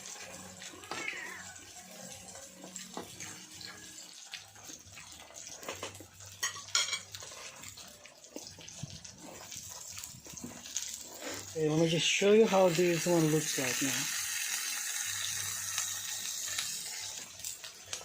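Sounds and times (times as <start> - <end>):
cutlery clinking against dishes: 5.6 - 7.4
cutlery clatter: 5.6 - 7.5.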